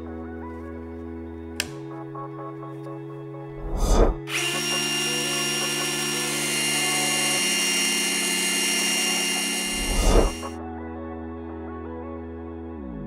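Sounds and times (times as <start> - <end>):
background music: 0.0 - 13.0
whoosh: 3.6 - 4.3
rotary hammer running: 4.3 - 10.5.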